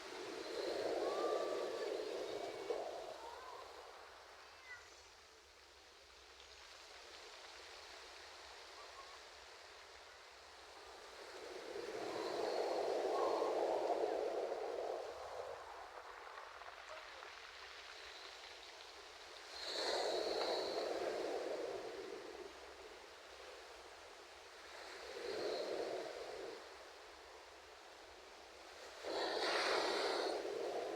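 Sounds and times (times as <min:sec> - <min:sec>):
ocean surf washing in: 0:00.0 - 0:04.3, 0:19.2 - 0:27.3, 0:28.0 - 0:30.9.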